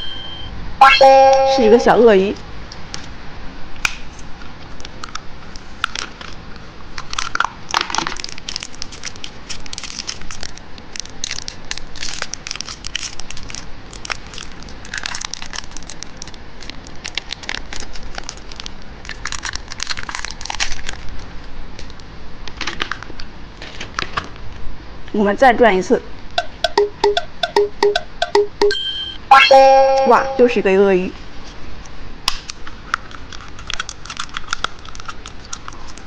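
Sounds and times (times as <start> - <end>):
plastic wrapper crinkling: 7.0 - 21.3, 33.3 - 36.0.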